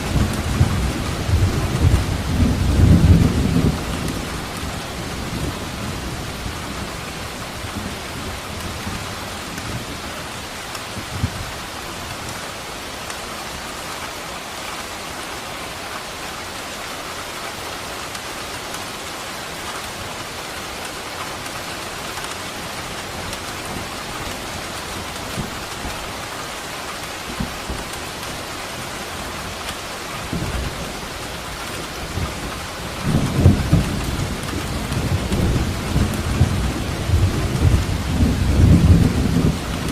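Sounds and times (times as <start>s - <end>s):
thunder rumbling: 0.0s - 9.1s, 30.2s - 39.9s
steady rain: 0.0s - 39.9s.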